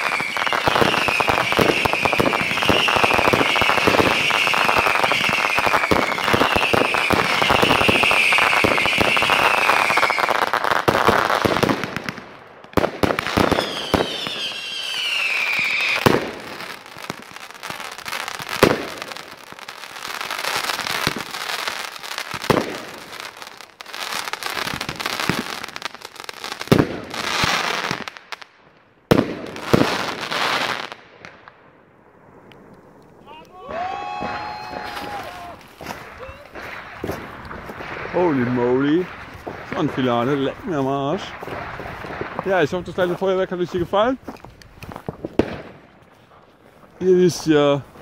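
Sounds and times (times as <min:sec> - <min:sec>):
falling firework whistles: 0:00.0 - 0:10.4, 0:13.4 - 0:16.3
sharp firework bangs: 0:00.0 - 0:19.3, 0:22.3 - 0:23.2, 0:26.6 - 0:28.1, 0:34.1 - 0:43.8, 0:45.0 - 0:45.9
fireworks crackling: 0:00.0 - 0:48.0.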